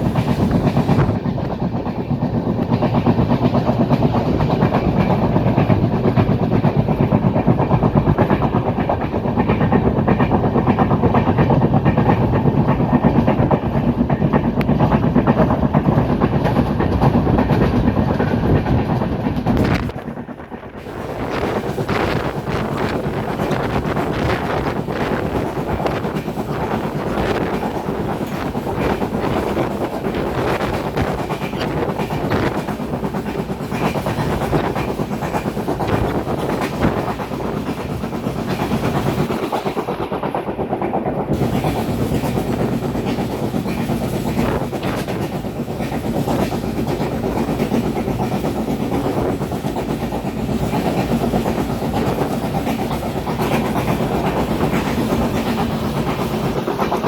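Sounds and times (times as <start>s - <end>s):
train wheels clattering over rails: 0.0s - 57.0s.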